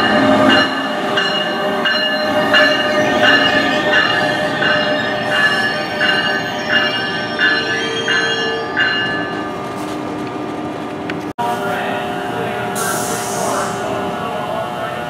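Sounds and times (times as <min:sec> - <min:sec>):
high ringing tone: 0:00.0 - 0:09.6
train cars rolling to a stop: 0:00.0 - 0:15.0.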